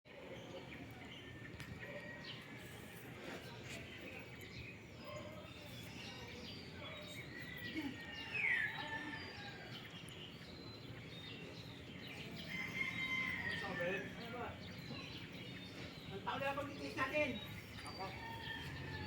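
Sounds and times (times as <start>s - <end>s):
birds chirping: 0.1s - 19.0s.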